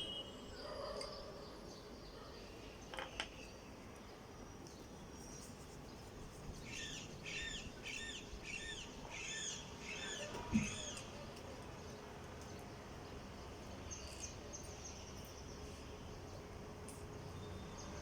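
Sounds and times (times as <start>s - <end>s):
bird chirping: 4.6s - 11.2s.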